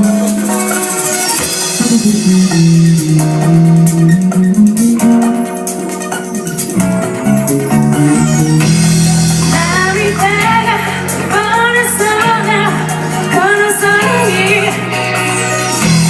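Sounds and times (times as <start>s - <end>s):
live band music: 0.0s - 16.0s
woman singing: 9.4s - 15.7s.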